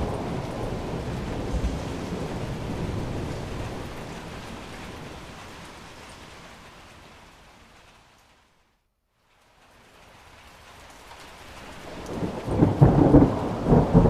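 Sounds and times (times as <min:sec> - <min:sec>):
thunder rumbling: 0:00.0 - 0:06.0, 0:11.8 - 0:14.0
steady rain: 0:00.0 - 0:14.0.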